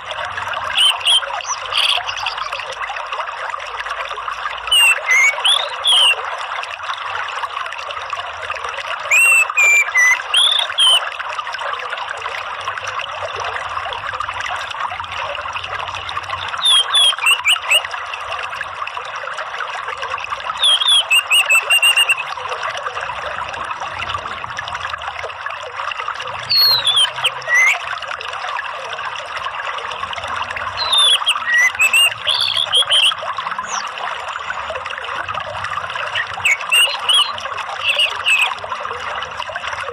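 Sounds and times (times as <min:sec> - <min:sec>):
water trickling: 0:00.0 - 0:39.9
thrush singing gliding whistles: 0:00.7 - 0:02.6, 0:04.7 - 0:06.2, 0:09.1 - 0:11.1, 0:16.4 - 0:17.8, 0:20.6 - 0:22.3, 0:26.5 - 0:27.8, 0:30.8 - 0:34.6, 0:36.0 - 0:38.6.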